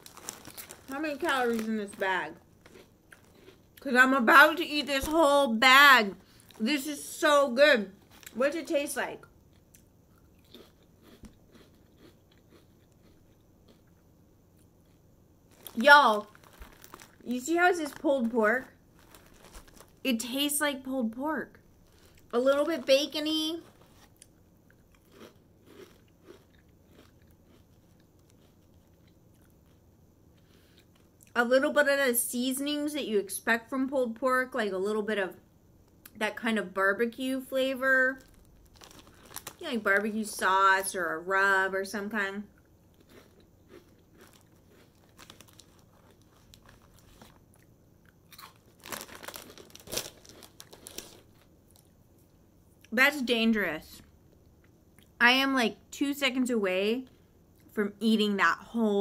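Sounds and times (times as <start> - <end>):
person chewing crunchy crackers: 0.0 - 3.9, 6.2 - 6.6, 9.2 - 20.0, 21.8 - 23.0, 23.6 - 31.4, 38.2 - 39.7, 42.5 - 52.0.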